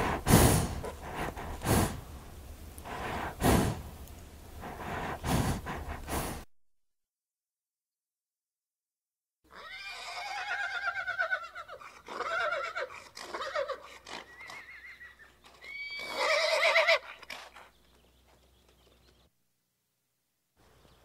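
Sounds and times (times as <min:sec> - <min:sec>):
horse whinnying: 0:09.5 - 0:17.4.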